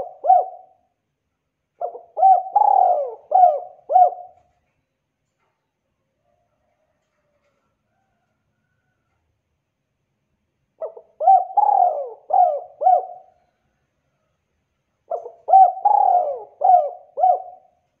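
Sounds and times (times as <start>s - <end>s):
dove cooing: 0.0s - 0.9s, 1.8s - 4.6s, 10.8s - 13.6s, 15.1s - 17.9s.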